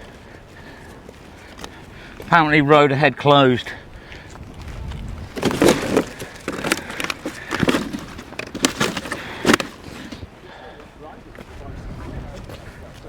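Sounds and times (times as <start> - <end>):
rustling: 4.7 - 10.3.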